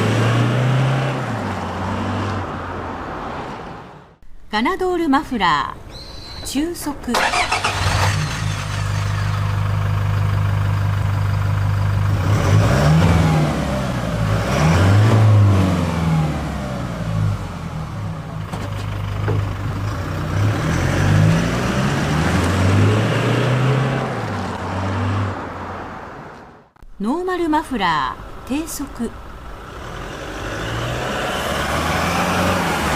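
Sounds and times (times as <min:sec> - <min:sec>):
diesel exhaust drone: 0:07.5 - 0:24.3.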